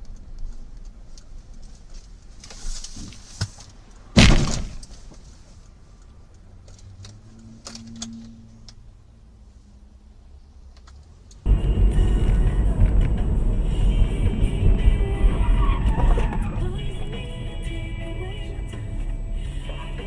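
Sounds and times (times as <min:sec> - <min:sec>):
vehicle collision crash: 0:04.1 - 0:05.2, 0:11.5 - 0:20.0.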